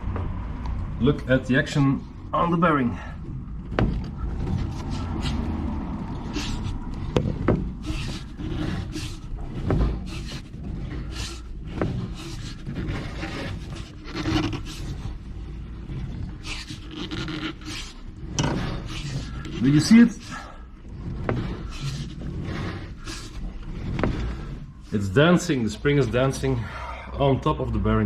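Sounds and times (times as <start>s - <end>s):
suspension creaking and rasping: 0.0s - 28.0s.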